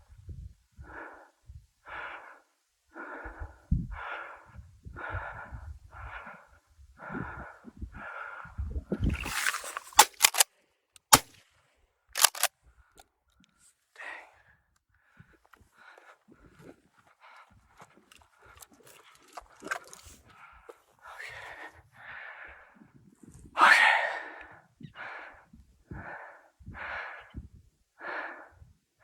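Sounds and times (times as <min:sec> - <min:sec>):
person breathing hard: 0:00.8 - 0:10.4, 0:23.6 - 0:28.7
sharp clicks: 0:09.3 - 0:11.4, 0:12.2 - 0:12.5.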